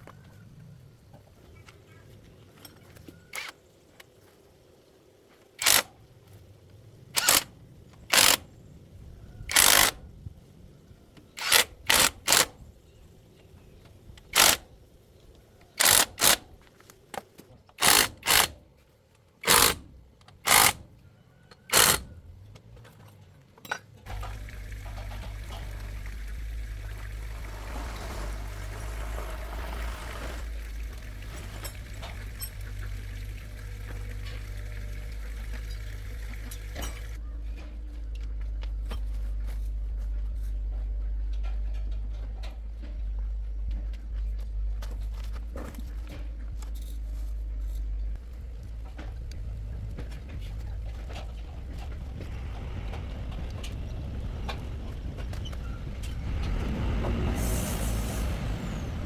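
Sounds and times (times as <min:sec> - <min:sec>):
low machine hum: 0:24.1 - 0:59.0
short hissing bursts: 0:57.4 - 0:58.4.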